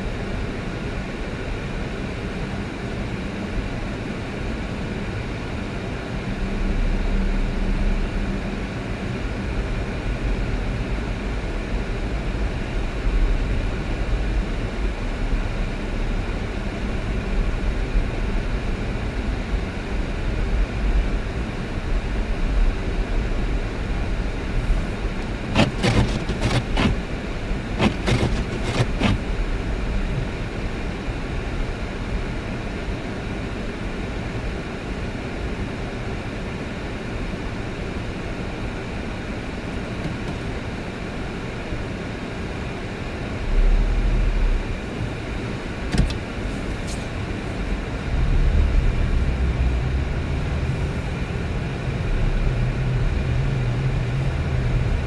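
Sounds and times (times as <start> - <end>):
car engine and tyre rumble: 0.0 - 55.0
sharp clicks or knocks: 25.2 - 27.0, 27.8 - 29.2, 45.9 - 46.2.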